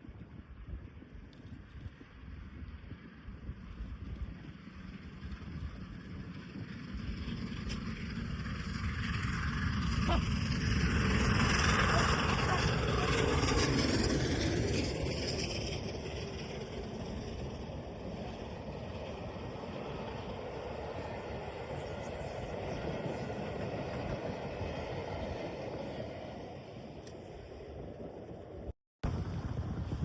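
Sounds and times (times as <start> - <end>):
steam train rumbling: 5.0 - 27.7.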